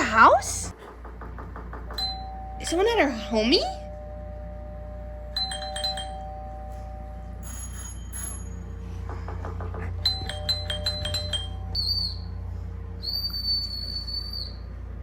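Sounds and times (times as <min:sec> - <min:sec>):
doorbell ding-dong chime: 0:02.0 - 0:08.7, 0:10.1 - 0:11.8.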